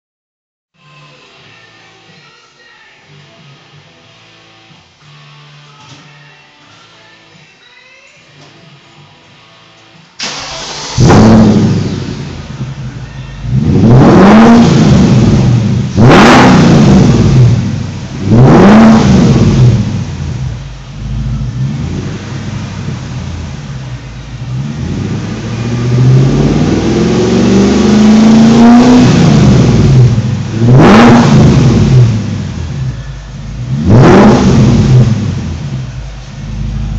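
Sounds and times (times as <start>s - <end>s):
car engine revving: 10.2s - 36.9s.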